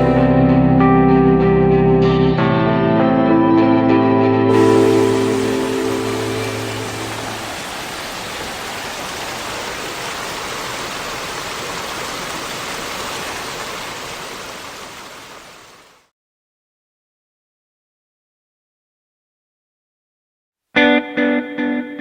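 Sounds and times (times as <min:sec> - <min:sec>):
held music chord: 0:00.0 - 0:07.6
flowing water rushing: 0:04.5 - 0:16.1.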